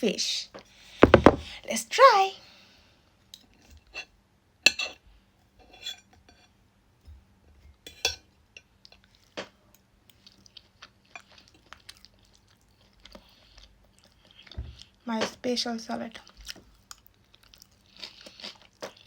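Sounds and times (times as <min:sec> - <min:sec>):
cutlery clinking on a plate: 0:07.9 - 0:08.3.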